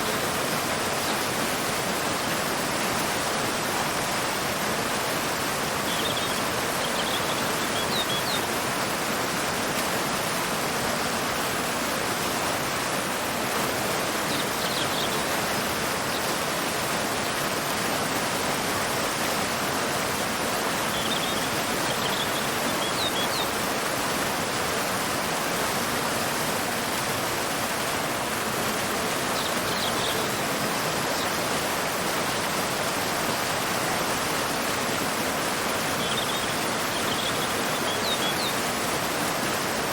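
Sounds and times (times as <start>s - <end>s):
waterfall and river rushing: 0.0s - 39.9s.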